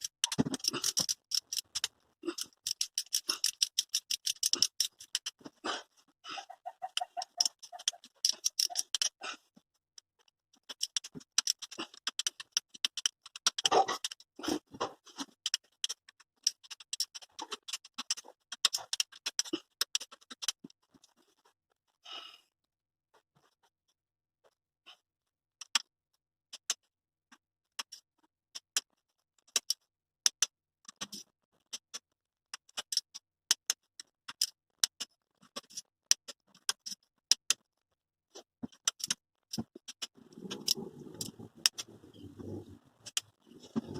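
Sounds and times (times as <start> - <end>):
tools clicking and tapping: 0.0 - 5.6, 6.6 - 9.2, 10.0 - 21.1, 27.7 - 37.6, 38.4 - 43.9.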